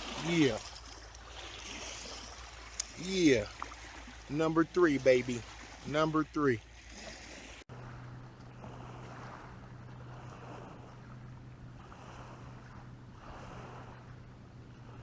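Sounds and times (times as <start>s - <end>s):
lake water lapping: 0.0s - 15.0s
steady low hum: 7.7s - 15.0s.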